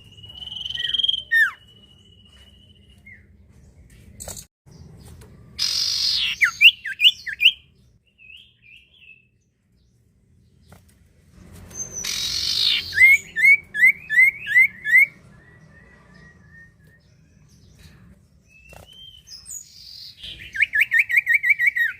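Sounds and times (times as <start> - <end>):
bird rasping and chirping call: 5.6 - 7.6, 11.7 - 21.9.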